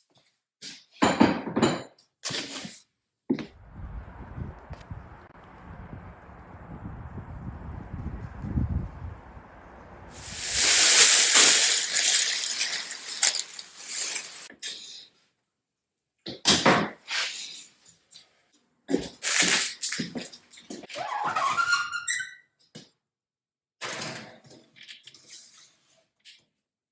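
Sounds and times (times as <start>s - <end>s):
water running from tap: 9.4s - 14.5s.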